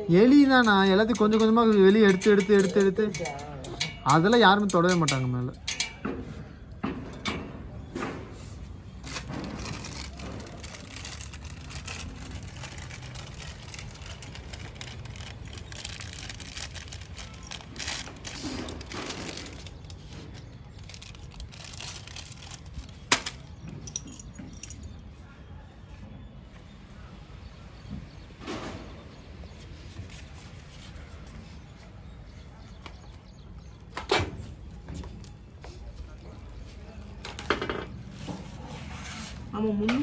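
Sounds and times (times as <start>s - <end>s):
light clinks and knocks: 0.3s - 25.1s.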